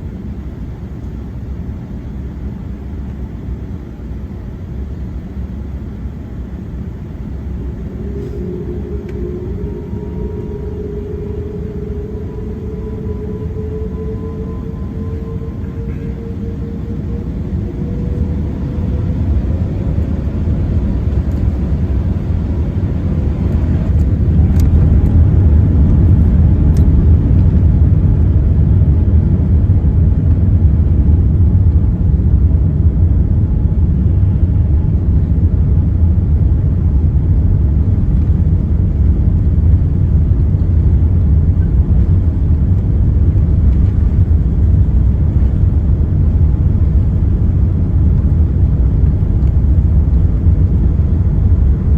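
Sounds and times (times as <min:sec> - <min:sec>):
jet engines spooling up: 0:04.1 - 0:51.9.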